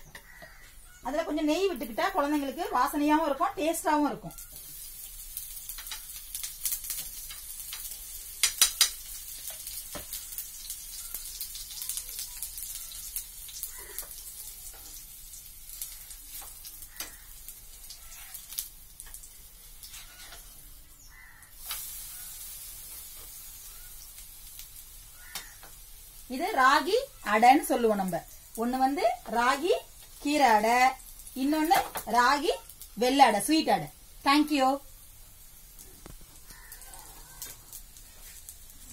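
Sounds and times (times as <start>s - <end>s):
flatbread sizzling in a pan: 0.0s - 38.9s
metal spatula scraping a pan: 19.8s - 20.6s.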